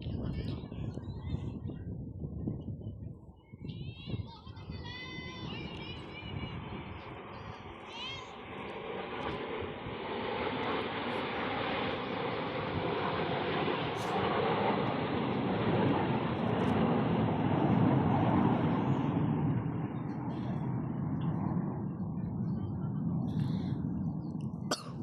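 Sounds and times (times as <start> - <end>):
aircraft flying past: 5.2 - 25.0.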